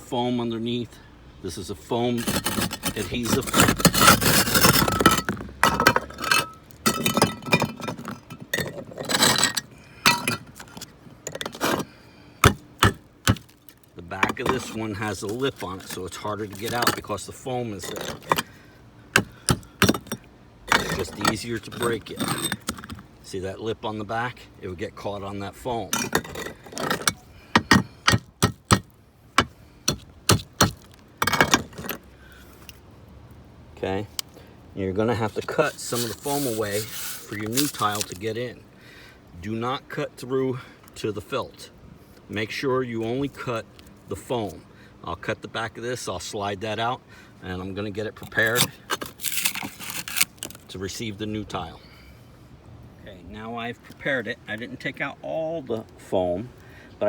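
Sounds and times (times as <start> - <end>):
scraping rattle: 2.2 - 13.4
roof tile pieces clinking: 2.2 - 17.2, 17.8 - 18.5, 19.2 - 23.0, 25.9 - 28.8, 29.4 - 32.1, 35.6 - 38.2, 48.5 - 50.6
hammer breaking roof tile: 12.4 - 13.5, 26.0 - 32.0.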